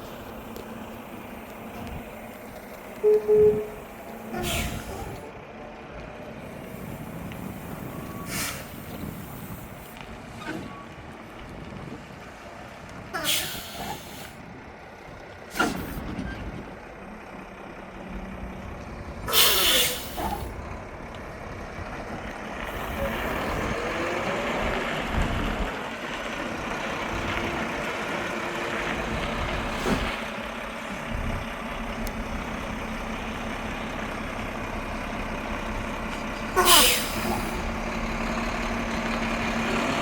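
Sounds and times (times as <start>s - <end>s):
truck engine running: 0.0s - 40.0s
air brakes hissing: 0.1s - 5.4s, 6.5s - 10.7s, 13.2s - 14.4s, 15.5s - 16.4s, 19.3s - 20.6s, 22.7s - 23.7s, 36.5s - 37.7s.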